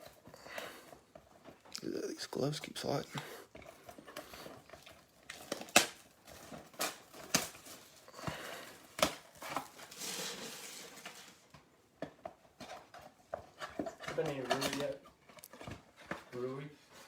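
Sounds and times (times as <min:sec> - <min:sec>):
plastic wrap crinkling and tearing: 0:03.9 - 0:11.6.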